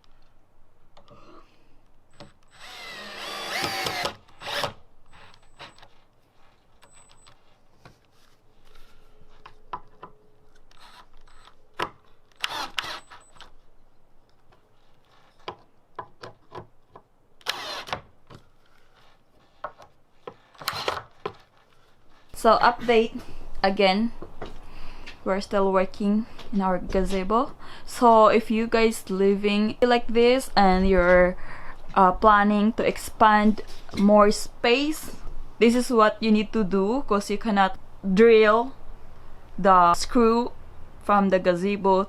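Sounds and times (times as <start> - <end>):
power drill driving screws: 2.2 - 5.8, 10.7 - 11.6, 12.3 - 13.4, 17.4 - 18.0, 20.6 - 21.0.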